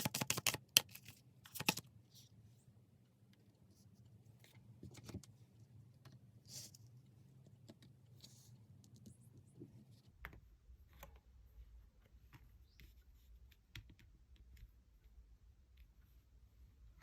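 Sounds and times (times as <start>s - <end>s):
faint clicks and taps: 12.0s - 16.2s.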